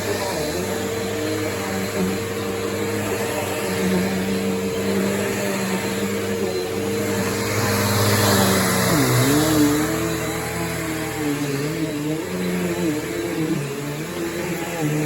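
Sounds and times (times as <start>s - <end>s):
vacuum cleaner motor whine: 0.0s - 15.0s.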